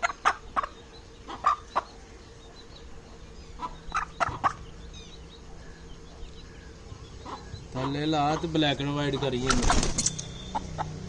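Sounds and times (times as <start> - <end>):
chicken clucking: 0.0 - 2.0, 2.6 - 4.7.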